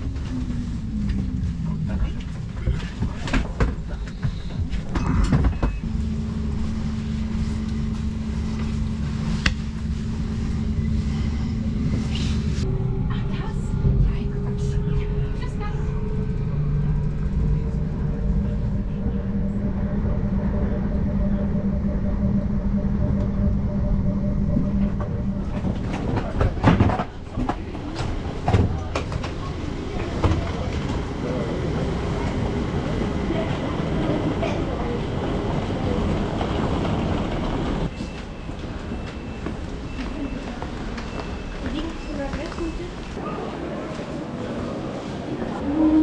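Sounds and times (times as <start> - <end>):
train low rumble: 0.0 - 46.0
train knocks and clicks: 2.0 - 6.8, 24.8 - 43.2.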